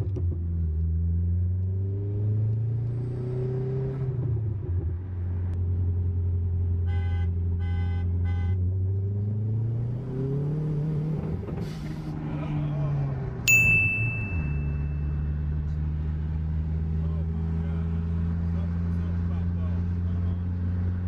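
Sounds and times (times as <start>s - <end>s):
car engine drone: 0.0s - 21.0s
short electronic beeps: 13.5s - 15.3s.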